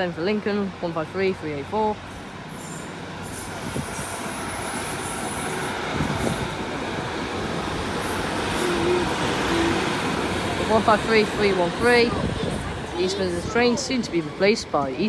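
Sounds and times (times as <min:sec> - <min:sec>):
diesel train engine: 0:00.0 - 0:15.0
train wheels on rails: 0:01.9 - 0:15.0.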